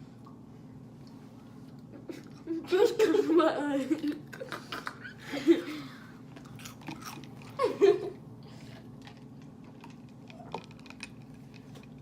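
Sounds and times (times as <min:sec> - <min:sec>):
crunchy snack being chewed: 0:06.3 - 0:07.7, 0:08.6 - 0:12.0.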